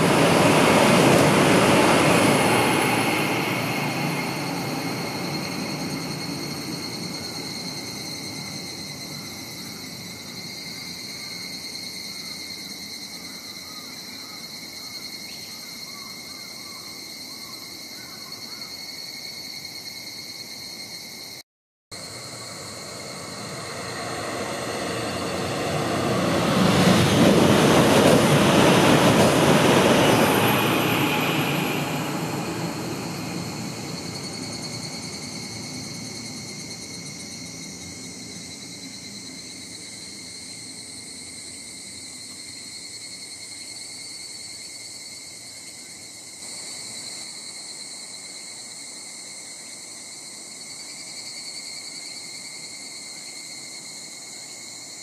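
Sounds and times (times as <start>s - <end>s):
high-speed train roaring past: 0.0s - 13.3s, 21.9s - 48.9s
insect chorus: 0.0s - 55.0s.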